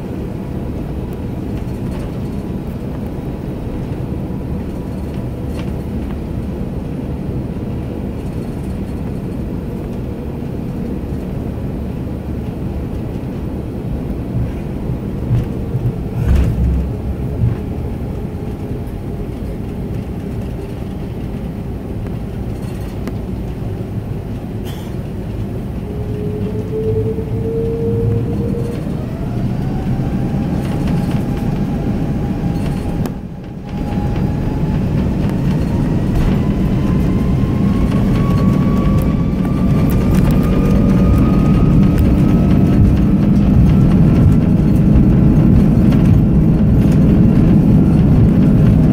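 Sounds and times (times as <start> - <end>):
airliner cabin rumble: 0.0 - 48.9
jet engines whining: 0.0 - 48.9
low thumps: 14.3 - 19.0.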